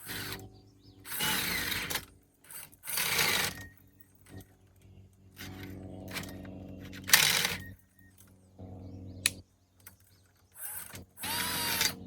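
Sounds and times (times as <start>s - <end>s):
electric drill boring through metal: 1.1s - 3.7s, 10.6s - 12.0s.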